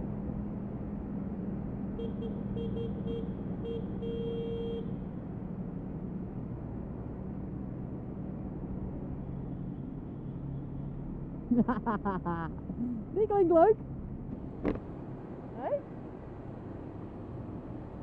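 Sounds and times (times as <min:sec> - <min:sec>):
vehicle horn toots: 0:02.0 - 0:04.9.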